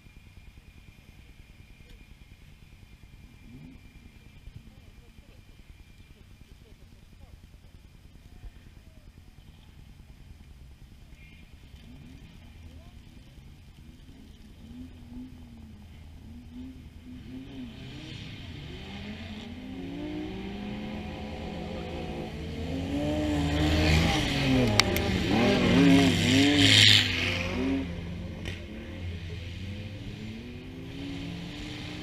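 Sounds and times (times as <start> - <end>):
car engine revving hard: 16.3 - 32.0.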